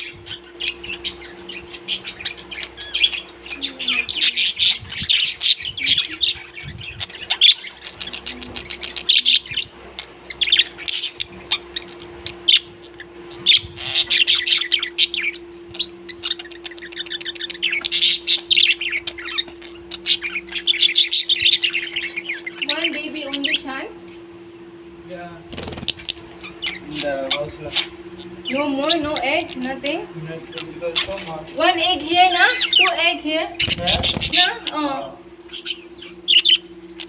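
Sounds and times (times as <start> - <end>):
low hum: 0.0 - 26.9
parrots chirping and chattering: 0.0 - 37.0.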